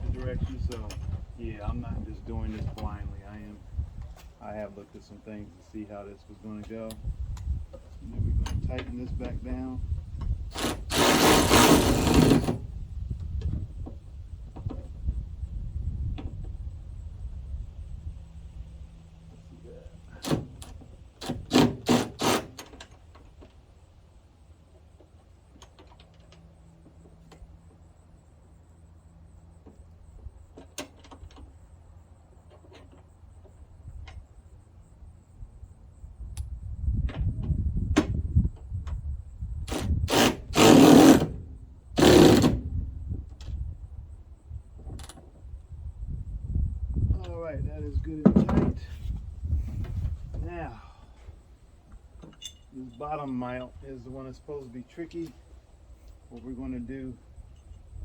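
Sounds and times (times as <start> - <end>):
low wind rumble: 0.0 - 21.6, 33.7 - 55.1, 55.7 - 58.0.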